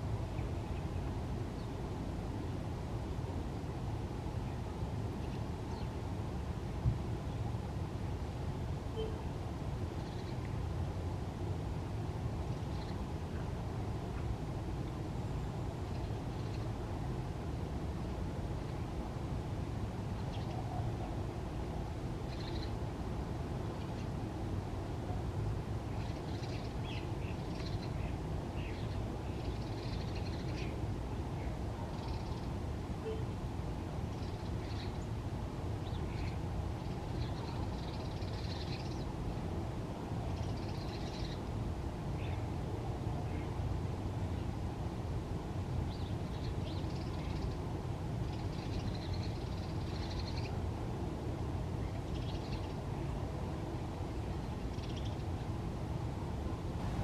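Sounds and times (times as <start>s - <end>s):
low wind rumble: 0.0s - 57.0s
trilled bird calls: 22.3s - 22.8s, 48.3s - 50.6s.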